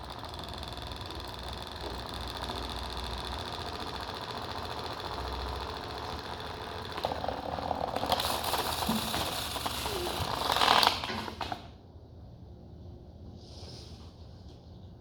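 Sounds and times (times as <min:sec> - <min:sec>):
small electric motor rattling: 0:00.0 - 0:11.6.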